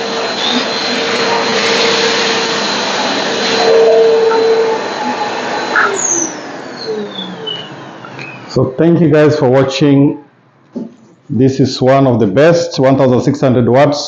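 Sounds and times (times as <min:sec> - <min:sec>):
vacuum motor spinning down: 0:00.0 - 0:09.0
vacuum cleaner running: 0:00.0 - 0:11.0.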